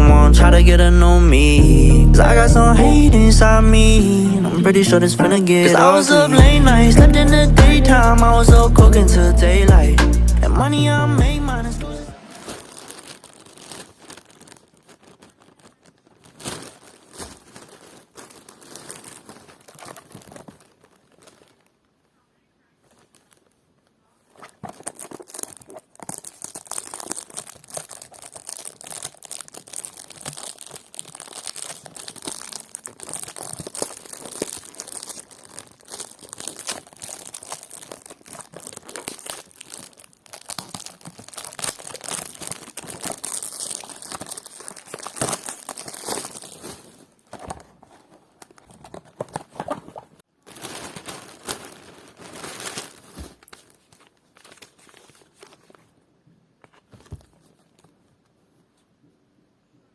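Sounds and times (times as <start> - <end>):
material crinkling and crackling: 12.1 - 58.9.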